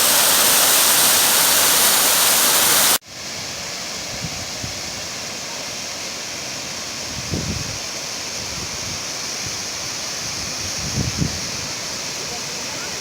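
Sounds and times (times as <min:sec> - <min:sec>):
waterfall rushing: 0:00.0 - 0:03.0.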